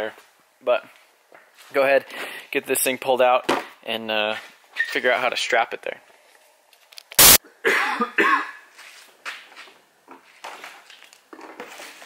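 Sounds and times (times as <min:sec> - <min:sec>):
person coughing: 0:07.6 - 0:08.6.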